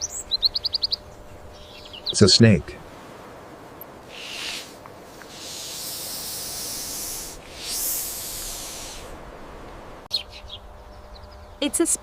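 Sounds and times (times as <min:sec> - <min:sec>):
snake hissing: 0:04.0 - 0:09.2.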